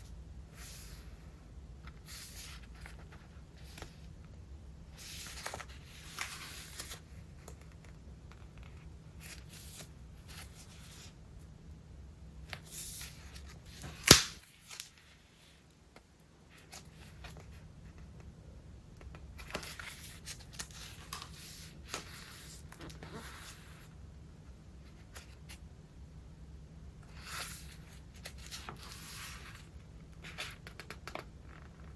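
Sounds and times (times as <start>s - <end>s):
notebook pages turning: 5.0s - 10.7s.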